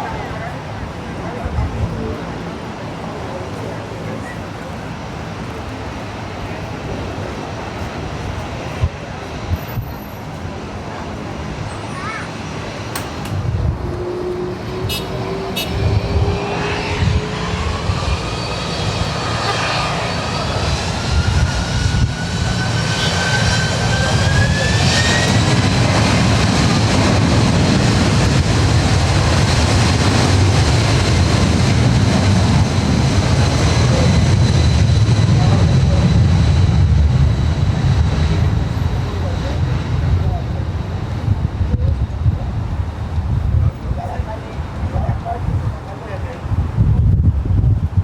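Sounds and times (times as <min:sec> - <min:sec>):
jet engine whine: 0:00.0 - 0:48.0.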